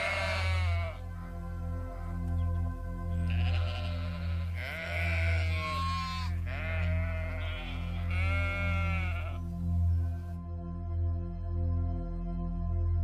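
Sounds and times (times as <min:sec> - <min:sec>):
sheep bleating: 0:00.0 - 0:01.0, 0:03.2 - 0:09.5
low background music: 0:00.0 - 0:13.0.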